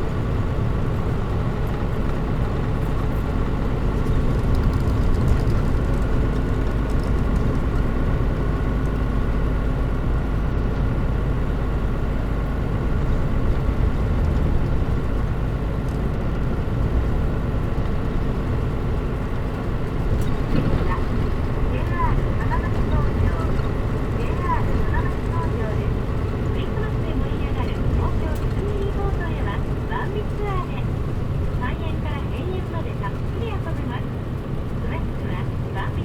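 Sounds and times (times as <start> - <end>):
bus engine drone: 0.0 - 36.0
road noise: 0.0 - 36.0.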